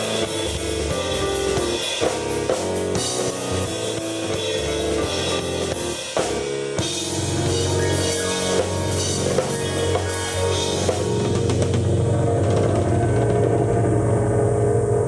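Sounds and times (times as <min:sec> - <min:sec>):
sustained keyboard chords: 0:00.0 - 0:15.0
drum beat: 0:05.0 - 0:13.5.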